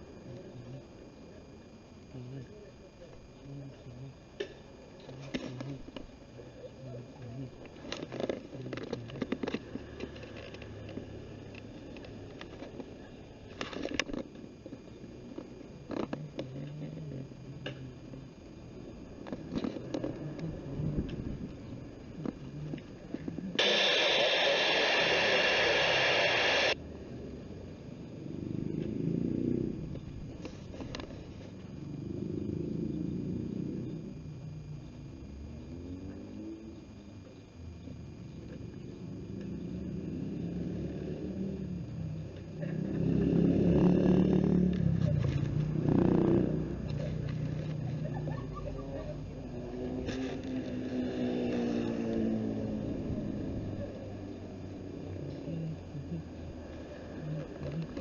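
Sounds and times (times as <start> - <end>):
radio static hiss: 0.0 - 58.0.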